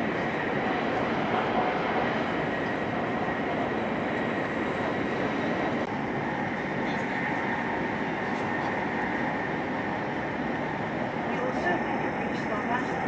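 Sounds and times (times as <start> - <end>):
train running at speed: 0.0 - 13.0.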